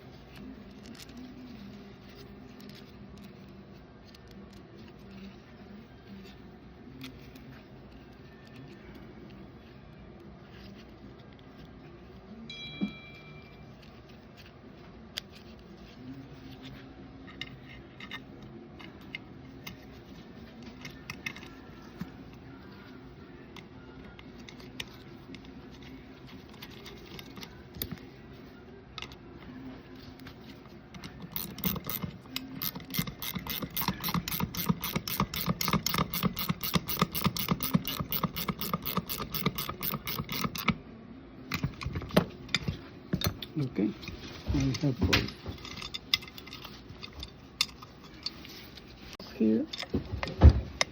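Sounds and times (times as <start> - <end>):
metal parts clicking: 20.6 - 22.0, 30.9 - 40.8, 44.7 - 48.8
winch ratcheting clicks: 31.3 - 40.8.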